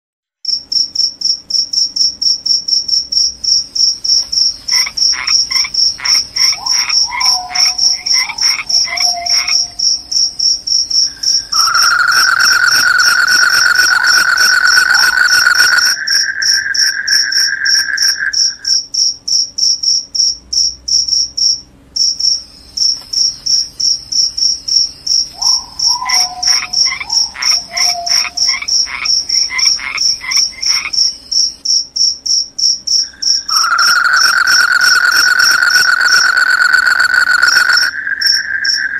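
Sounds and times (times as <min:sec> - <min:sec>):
crickets trilling: 0:00.4 - 0:38.9
steady lower trill: 0:04.8 - 0:18.6
lower pulsed calls falling: 0:06.0 - 0:09.8, 0:11.1 - 0:18.6, 0:25.4 - 0:29.5, 0:33.4 - 0:38.9.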